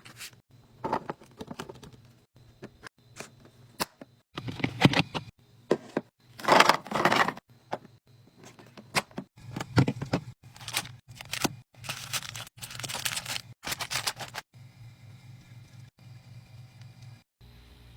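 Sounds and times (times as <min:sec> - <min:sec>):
items clicking and clattering: 0:08.4 - 0:14.4
packaging rustling: 0:10.4 - 0:14.5.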